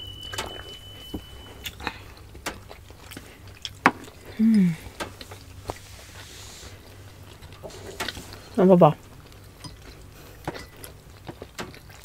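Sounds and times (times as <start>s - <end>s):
chewing and smacking: 0.3s - 12.0s
person humming mm: 4.3s - 4.9s.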